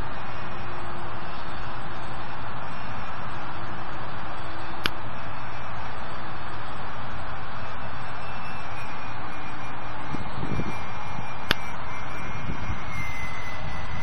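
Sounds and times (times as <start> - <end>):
model plane motor whine: 0.0 - 14.0
sharp click: 4.8 - 5.0, 11.5 - 11.7
wind rushing over microphone: 7.3 - 14.0.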